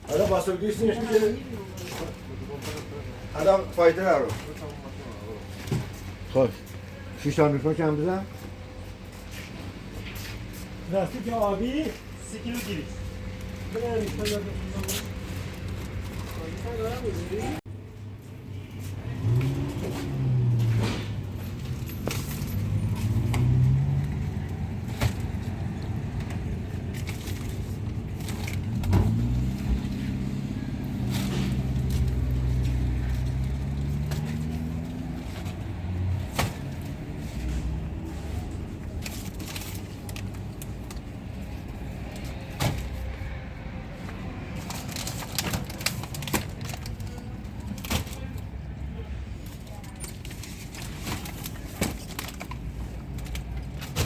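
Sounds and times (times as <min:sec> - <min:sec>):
vehicle engine revving: 0:18.8 - 0:26.1, 0:28.5 - 0:38.8.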